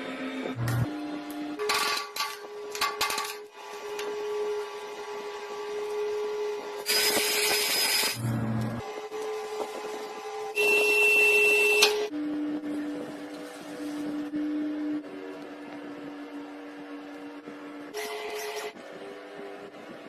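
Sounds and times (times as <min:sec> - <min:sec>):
small motor whining: 0:03.6 - 0:10.8.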